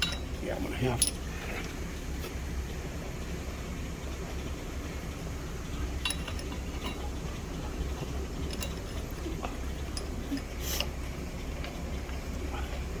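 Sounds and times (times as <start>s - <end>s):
light metallic clinks: 0.0s - 1.8s, 6.0s - 7.2s, 8.4s - 11.0s
low hum of shop machinery: 0.0s - 13.0s.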